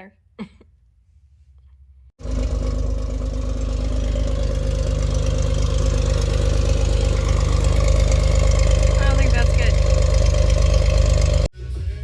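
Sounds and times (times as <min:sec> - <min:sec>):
car engine idling: 0:02.2 - 0:11.5.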